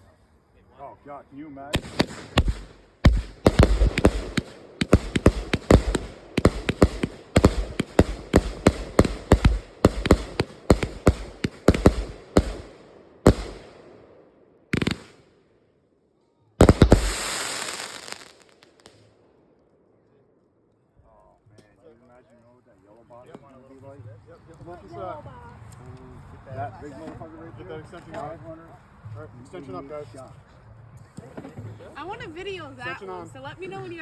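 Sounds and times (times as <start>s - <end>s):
firework volley shots: 1.7s - 15.3s, 16.6s - 19.1s
hissing crackling firework tail: 1.8s - 13.9s, 14.8s - 15.2s, 16.6s - 19.1s.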